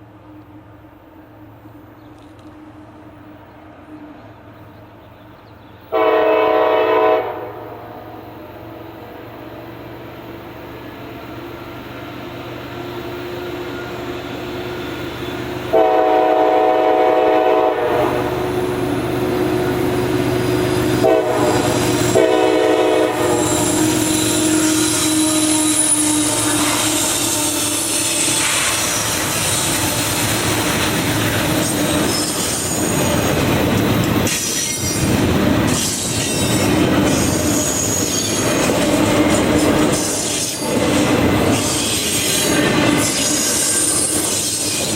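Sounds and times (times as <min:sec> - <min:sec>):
train horn blasts: 0:05.9 - 0:08.3, 0:15.7 - 0:18.6, 0:20.7 - 0:28.6
train wheels squealing on rails: 0:09.3 - 0:17.3, 0:17.9 - 0:44.9
train wheels clacking over joints: 0:23.5 - 0:44.9.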